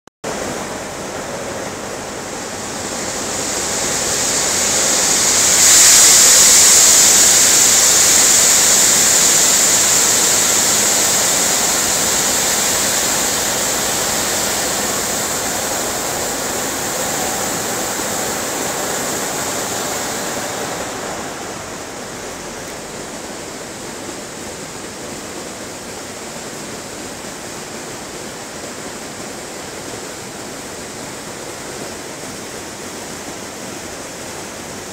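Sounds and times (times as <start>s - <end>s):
corn kernels pouring: 2.4s - 21.5s.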